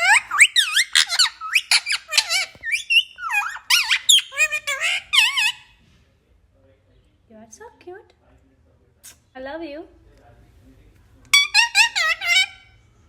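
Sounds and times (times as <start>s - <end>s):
parrot whistling and squawking: 0.0s - 5.7s, 11.3s - 12.8s.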